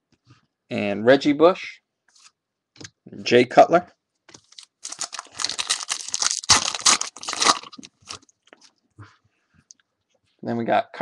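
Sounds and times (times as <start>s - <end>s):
foil pack tearing and crinkling: 4.5s - 8.2s.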